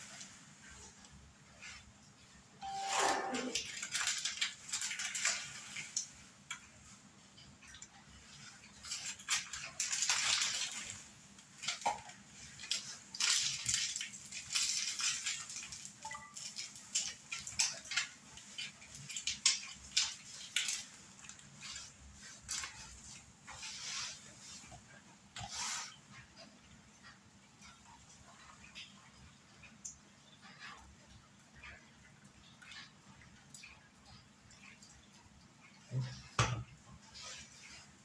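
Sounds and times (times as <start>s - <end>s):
tableware clinking and scraping: 2.6s - 3.6s.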